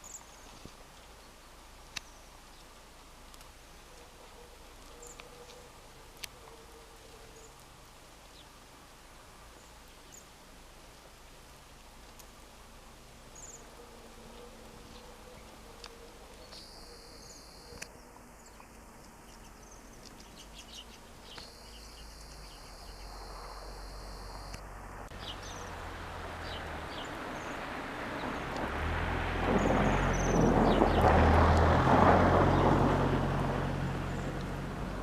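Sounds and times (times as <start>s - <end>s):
small birds chirping: 0.0s - 8.6s, 9.5s - 10.4s, 13.3s - 28.7s
low rumbling noise: 20.4s - 35.0s.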